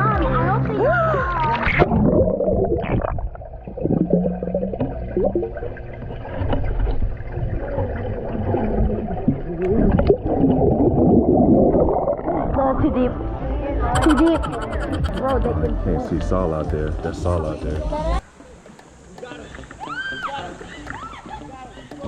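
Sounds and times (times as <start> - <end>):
muffled water gurgling and sloshing: 0.0 - 19.8
faint muffled cries: 14.0 - 15.5.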